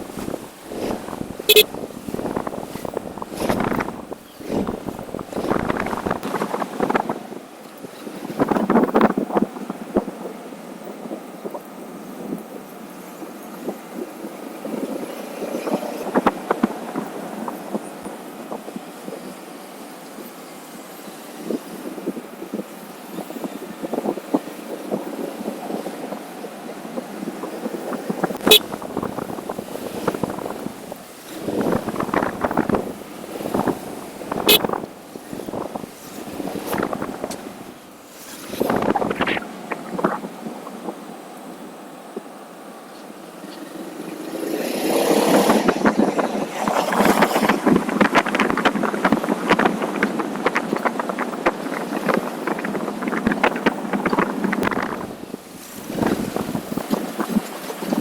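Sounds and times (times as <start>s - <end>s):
motorcycle on the move: 0.0s - 7.2s, 28.1s - 40.4s, 43.4s - 57.5s
wind buffeting microphone: 0.0s - 19.4s, 21.3s - 42.3s, 43.6s - 58.0s.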